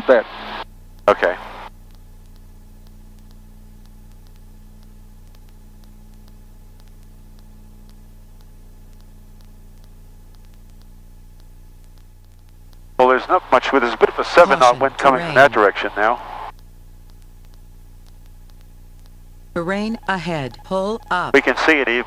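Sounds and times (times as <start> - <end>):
faint irregular clicks: 0.6 - 22.0
airplane engine drone: 13.0 - 16.5, 19.5 - 22.0
intercom hiss: 13.0 - 16.5, 19.7 - 22.0.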